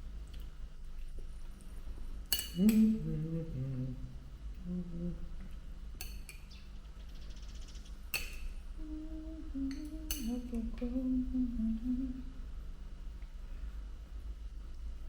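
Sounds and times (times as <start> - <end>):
person humming: 2.4 - 5.7, 8.7 - 12.6.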